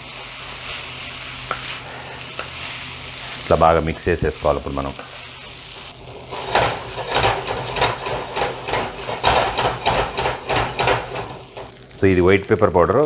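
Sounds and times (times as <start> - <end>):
spatula scraping and knocking pan: 6.0 - 11.8.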